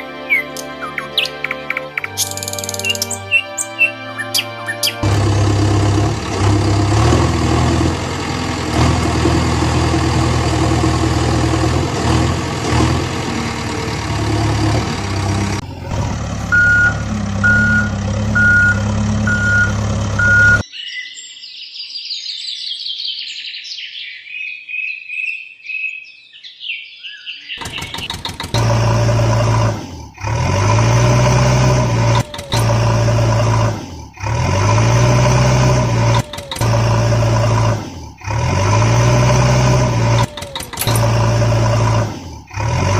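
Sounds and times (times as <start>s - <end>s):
birds chirping: 0.0s - 6.4s, 11.4s - 34.2s
heavy vehicle engine running: 2.1s - 20.6s, 27.6s - 42.9s
reversing alarm beeping: 16.5s - 20.6s.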